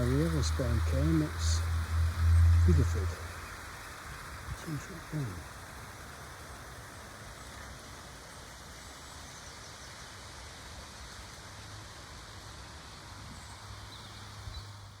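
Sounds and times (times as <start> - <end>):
wind buffeting microphone: 0.0 - 4.8.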